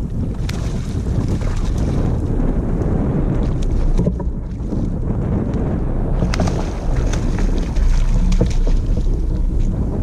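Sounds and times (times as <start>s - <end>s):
light ticks and splashes: 0.0s - 5.6s, 6.2s - 9.8s
wind buffeting microphone: 0.0s - 10.0s.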